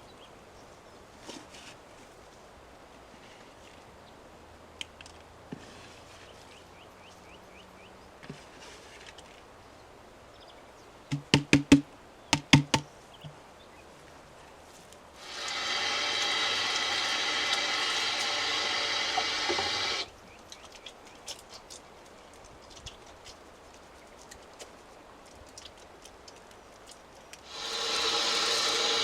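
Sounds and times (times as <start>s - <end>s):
sharp knocks with dull thud: 11.1s - 11.8s, 12.4s - 12.9s
loud steady rasping noise: 15.2s - 20.1s, 27.5s - 29.0s.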